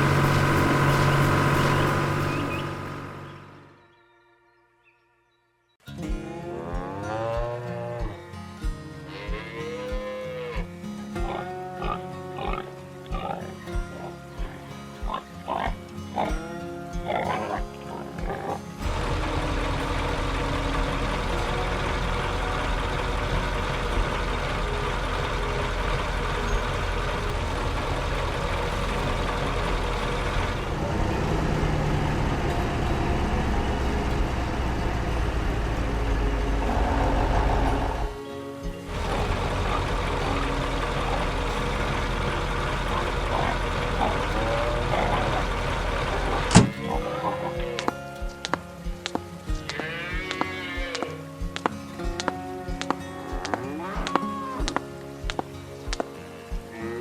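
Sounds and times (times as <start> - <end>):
tractor engine running: 0.0 - 3.9, 18.8 - 49.7.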